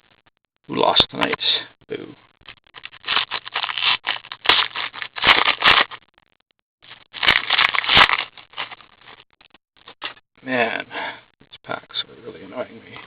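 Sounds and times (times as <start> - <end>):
card pack wrappers tearing and crinkling: 2.7 - 6.0, 6.8 - 9.2.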